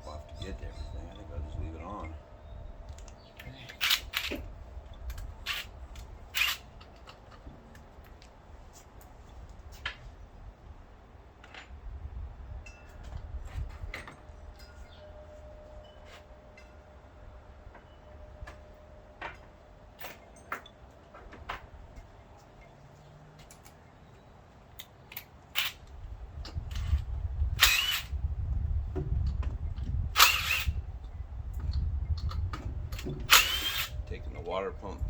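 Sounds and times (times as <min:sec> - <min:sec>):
low handling rumble: 0:00.0 - 0:08.4, 0:25.8 - 0:35.0
cordless power tool bursts: 0:06.3 - 0:06.7, 0:27.6 - 0:28.1, 0:30.1 - 0:30.8, 0:33.0 - 0:34.0.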